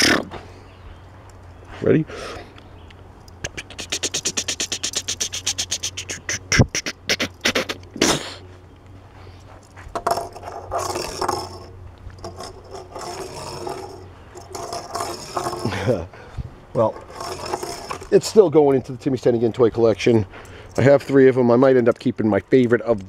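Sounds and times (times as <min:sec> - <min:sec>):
toy wheels clicking: 0:03.2 - 0:07.9, 0:10.0 - 0:15.8, 0:17.0 - 0:18.2
toy scraping on table: 0:10.0 - 0:15.9, 0:16.9 - 0:18.2.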